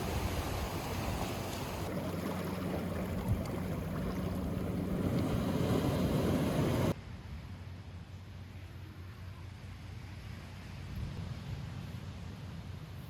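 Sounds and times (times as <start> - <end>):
surf washing ashore: 0.0 - 7.0
wind on microphone: 0.0 - 7.0.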